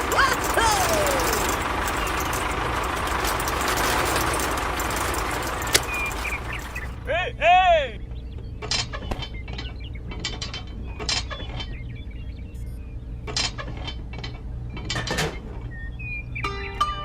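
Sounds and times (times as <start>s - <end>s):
steady low hum: 0.0s - 16.7s
plucked-string music: 16.4s - 17.0s.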